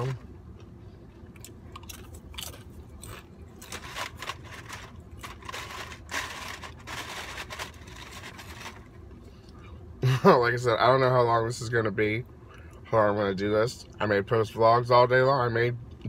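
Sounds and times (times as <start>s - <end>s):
person chewing crunchy food: 0.6s - 8.9s.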